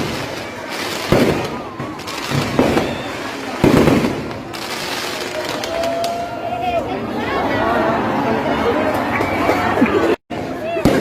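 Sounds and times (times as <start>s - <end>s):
fireworks exploding: 0.0s - 6.4s, 9.2s - 11.0s.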